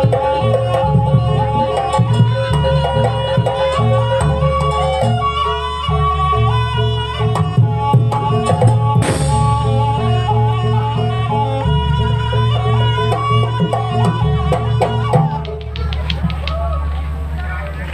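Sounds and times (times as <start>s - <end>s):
drums: 0.0s - 11.3s, 12.0s - 17.9s
steady low bass: 5.9s - 17.9s
melody line: 9.0s - 11.0s.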